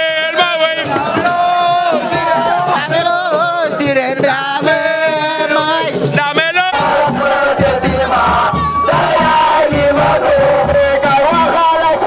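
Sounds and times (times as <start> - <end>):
crowd chanting and shouting: 0.0 - 12.0
devotional chant singing: 0.0 - 12.0
music with pounding beat: 5.9 - 12.0.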